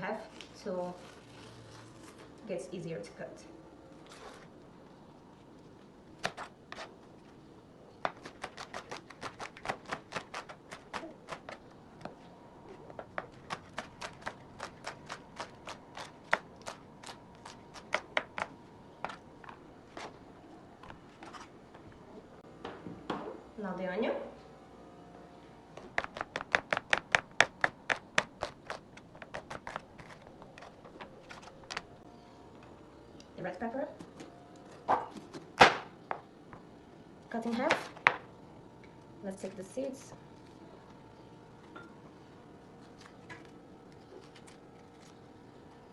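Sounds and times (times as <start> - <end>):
knife chopping onion on board: 25.8 - 30.7.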